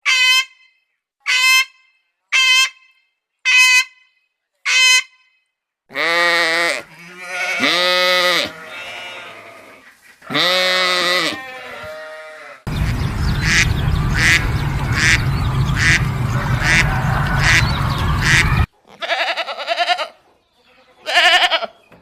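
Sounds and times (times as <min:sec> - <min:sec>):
short bleats: 0:05.9 - 0:12.7, 0:18.9 - 0:21.8
farm animal calls: 0:05.9 - 0:21.9
low rumble: 0:12.7 - 0:18.7.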